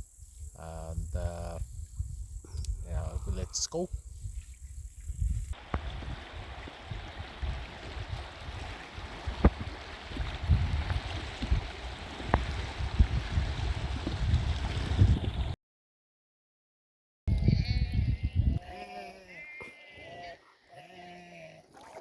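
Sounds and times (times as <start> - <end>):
water splashing around kayak: 5.5 - 15.6, 21.7 - 22.0.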